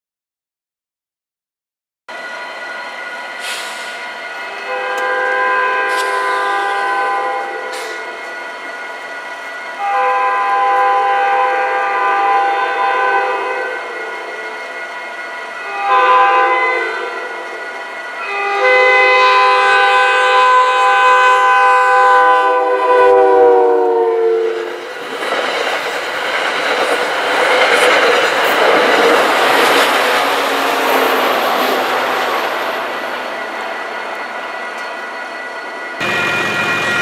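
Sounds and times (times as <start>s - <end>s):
passing train coaches rushing: 2.1s - 37.0s
train air horn blasts: 3.4s - 8.4s, 9.8s - 14.6s, 15.5s - 24.8s.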